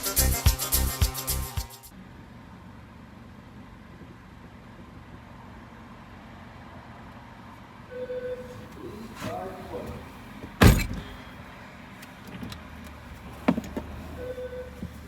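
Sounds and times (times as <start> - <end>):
music: 0.0 - 1.9.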